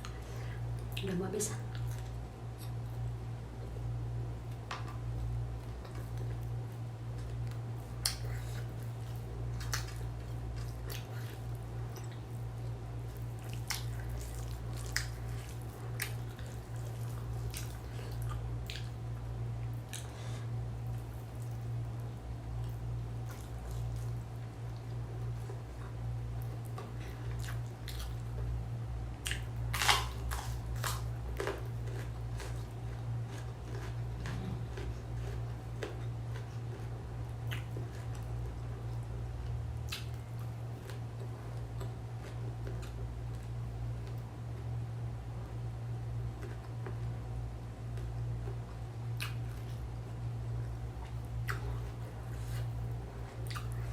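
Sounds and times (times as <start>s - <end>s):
steady low hum: 0.0s - 53.9s
chewing with clicks and smacks: 0.8s - 3.0s, 5.6s - 28.5s, 29.2s - 44.7s, 46.2s - 47.2s, 47.8s - 53.9s.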